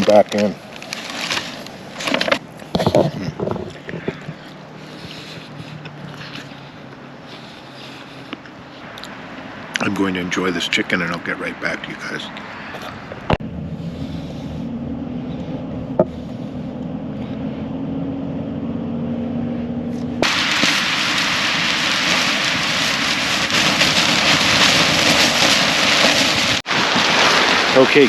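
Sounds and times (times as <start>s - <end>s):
wind and rain on a tarp: 0.0s - 6.6s, 20.2s - 28.0s
low steady hum: 13.4s - 20.2s.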